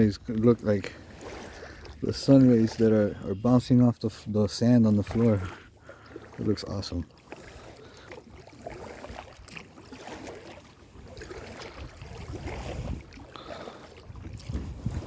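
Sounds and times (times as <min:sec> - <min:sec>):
water splashing against a kayak: 0:00.0 - 0:15.0
wind buffeting microphone: 0:11.0 - 0:15.0.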